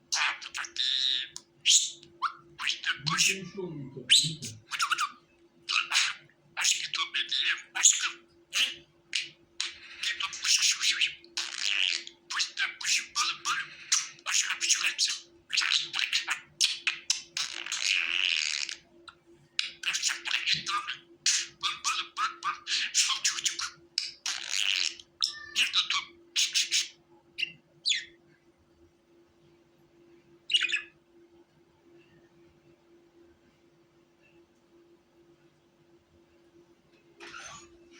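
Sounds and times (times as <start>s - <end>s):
faint steady hum: 0.0s - 37.9s
budgerigar chattering and chirping: 0.1s - 18.8s, 19.6s - 28.2s, 30.5s - 30.9s.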